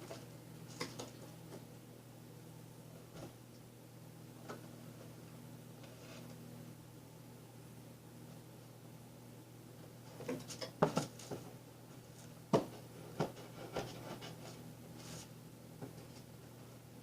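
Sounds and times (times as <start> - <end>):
knocks and taps on cardboard box: 12.5 - 14.0.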